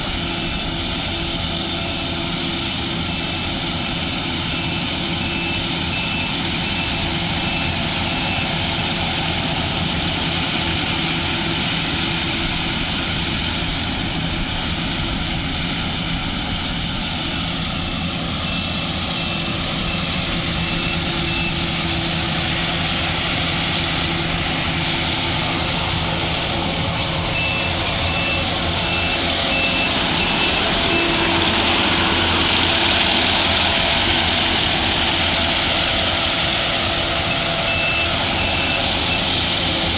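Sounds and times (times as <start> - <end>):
diesel engine running under load: 0.0 - 39.9
short high warning beeps: 27.3 - 31.8, 37.3 - 39.3.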